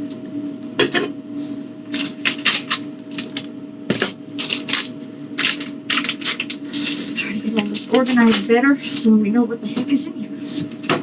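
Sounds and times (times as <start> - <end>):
steady low hum: 0.0 - 11.0
plastic and glass items clattering: 3.9 - 8.5.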